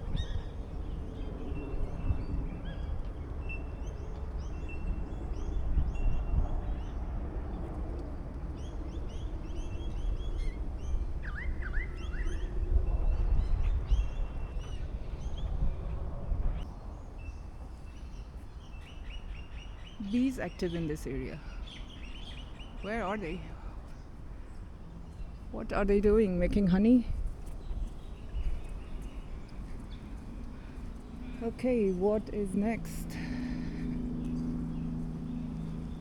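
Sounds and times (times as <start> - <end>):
small birds chirping: 0.0 - 15.7, 16.9 - 36.0
steady low rumble: 22.4 - 36.0.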